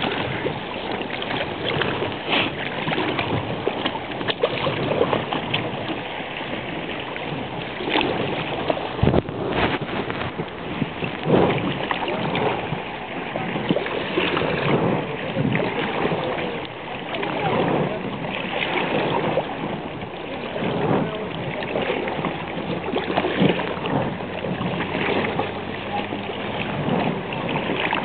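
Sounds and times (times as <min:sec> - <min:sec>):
paddling: 0:00.0 - 0:28.0
river water: 0:00.0 - 0:28.0
fabric rubbing on microphone: 0:09.0 - 0:10.5.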